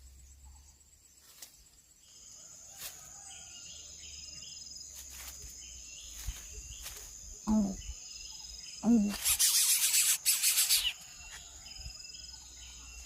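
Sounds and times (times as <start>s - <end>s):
high-pitched insect drone: 5.0s - 13.0s.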